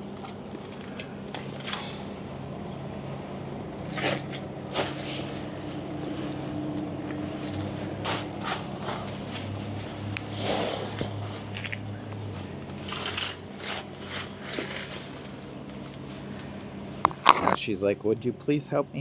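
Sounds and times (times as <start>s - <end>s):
low mechanical hum: 0.0s - 19.0s
metal tent frame clicking: 12.8s - 13.8s.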